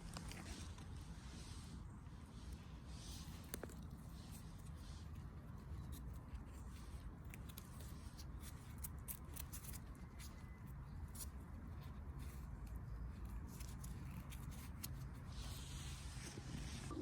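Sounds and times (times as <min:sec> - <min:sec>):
low steady rumble: 0:14.6 - 0:17.0.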